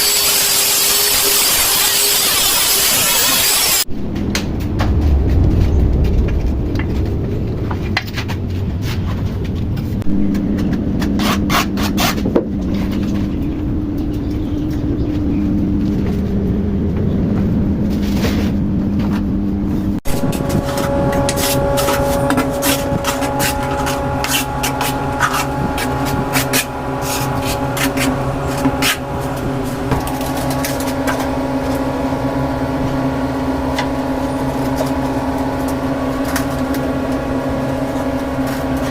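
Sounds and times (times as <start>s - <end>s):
angle grinder cutting tile: 0.0s - 3.9s, 20.1s - 31.2s
higher-pitched motor whine: 0.0s - 38.9s.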